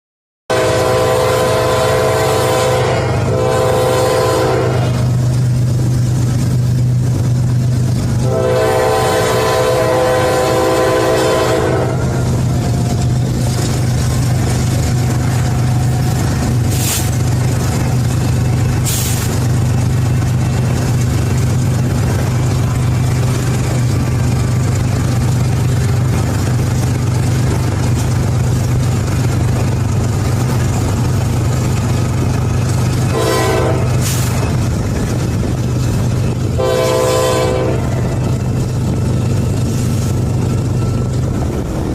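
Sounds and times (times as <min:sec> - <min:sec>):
locomotive horn blast: 0:00.5 - 0:05.4, 0:08.2 - 0:13.3, 0:33.0 - 0:34.6, 0:36.4 - 0:38.3
diesel locomotive engine drone: 0:00.5 - 0:41.9.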